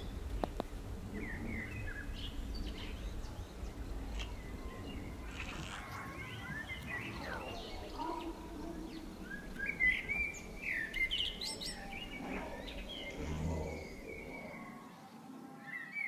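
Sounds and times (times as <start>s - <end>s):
songbirds singing: 0.0s - 16.0s.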